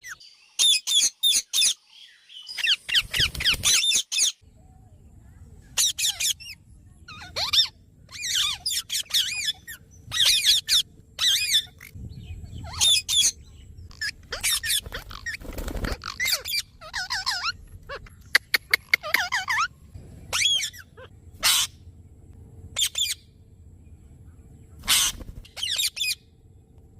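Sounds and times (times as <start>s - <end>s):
parrot squeaky calls: 0.0s - 1.8s, 2.5s - 4.4s, 5.8s - 19.7s, 20.3s - 21.8s, 22.8s - 23.2s, 24.8s - 26.2s.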